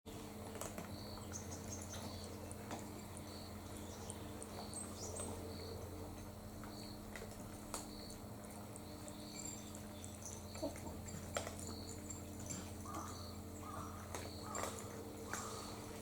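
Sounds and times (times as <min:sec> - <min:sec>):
small birds chirping: 0:00.1 - 0:16.0
steady low hum: 0:00.1 - 0:16.0.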